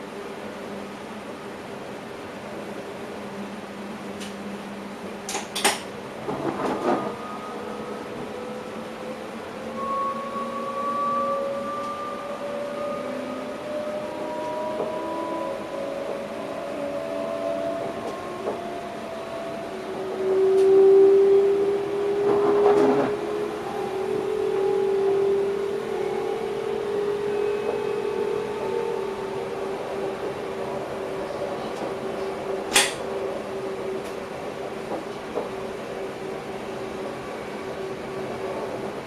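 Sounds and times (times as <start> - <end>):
electric train running hum: 0.0 - 39.0.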